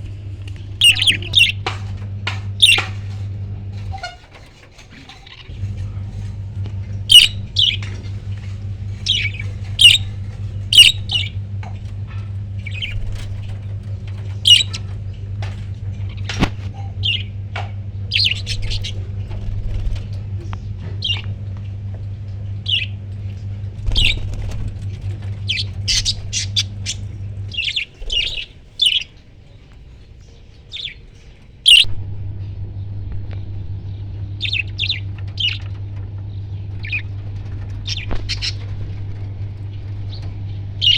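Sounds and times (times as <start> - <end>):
low hum: 0.0 - 40.9
parrots squawking: 0.7 - 5.7, 7.0 - 15.2, 16.0 - 17.4, 18.1 - 19.2, 22.6 - 23.1, 25.3 - 29.2, 29.9 - 31.9, 34.4 - 35.8, 36.8 - 39.3, 40.2 - 40.9.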